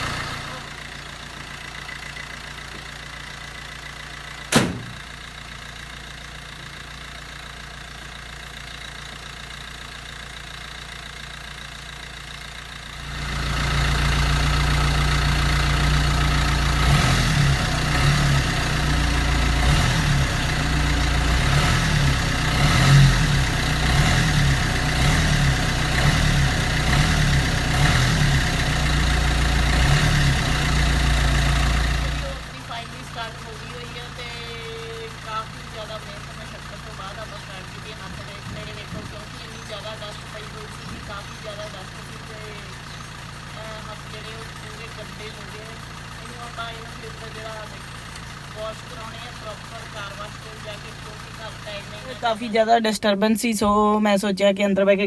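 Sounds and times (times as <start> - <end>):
engine cranking: 0.0 - 11.3, 12.6 - 54.0
diesel car engine idling: 0.0 - 55.0
bonnet slamming shut: 4.5 - 5.1.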